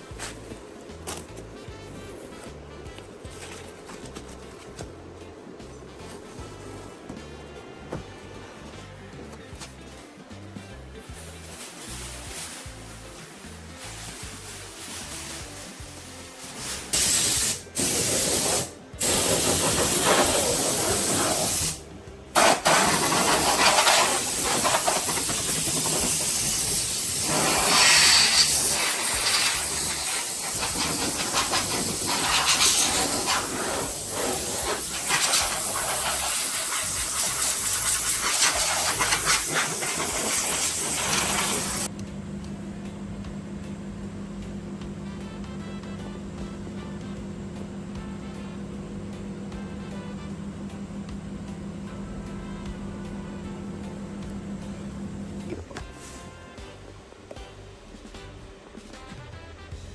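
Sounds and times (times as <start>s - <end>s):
spray paint hissing: 11.6s - 21.8s, 22.4s - 41.9s.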